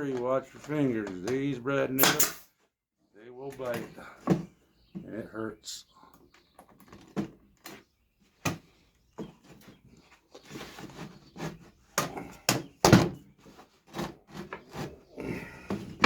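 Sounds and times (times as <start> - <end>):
nailer driving nails into wood: 2.0 - 2.4.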